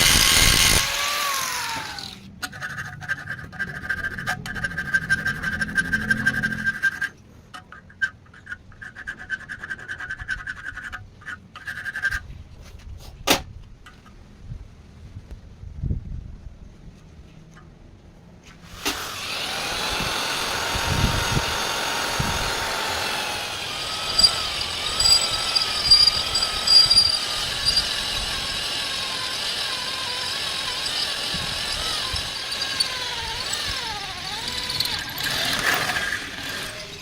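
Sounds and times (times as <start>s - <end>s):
electric power tool running: 0.0s - 2.2s, 18.7s - 37.0s.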